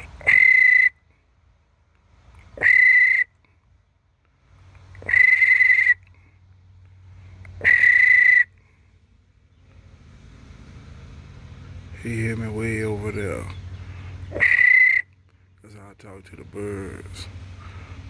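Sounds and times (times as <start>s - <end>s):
whistle blasts: 0.3s - 1.0s, 2.6s - 3.3s, 5.1s - 6.0s, 7.6s - 8.5s, 14.4s - 15.1s.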